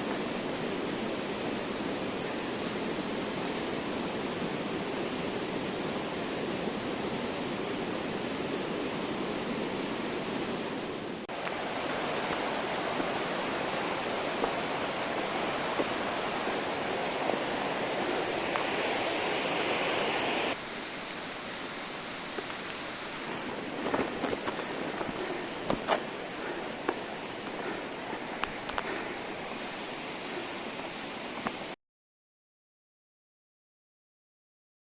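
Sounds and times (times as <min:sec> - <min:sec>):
stream water flowing: 0:00.0 - 0:31.8.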